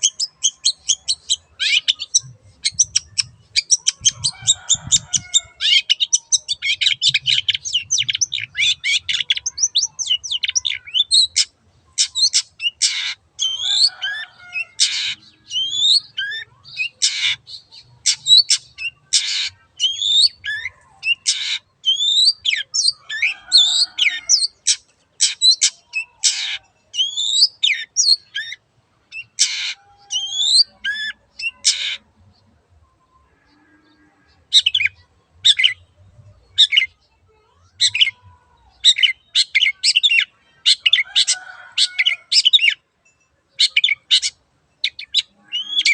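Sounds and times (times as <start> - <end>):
bird harsh rasping calls: 0.0 - 32.1
bird chattering song: 0.0 - 32.5, 34.3 - 42.8, 43.5 - 45.9.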